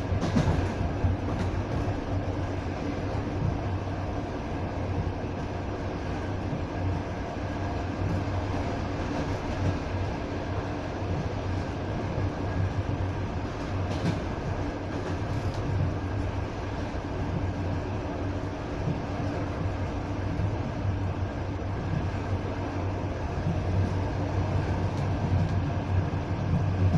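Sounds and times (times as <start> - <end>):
train wheels rumbling on rails: 0.0 - 26.9.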